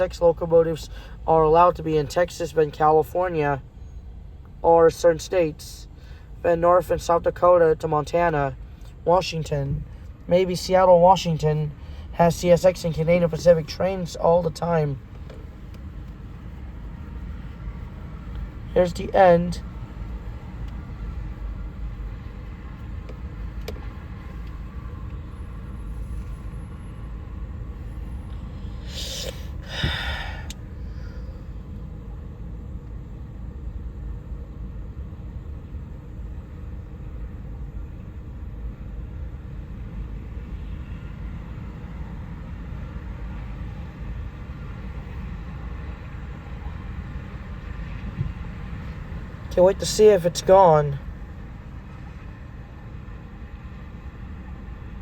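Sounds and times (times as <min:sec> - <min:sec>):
moving vehicle rumble: 0:00.0 - 0:55.0
loud hissing burst: 0:28.8 - 0:31.2.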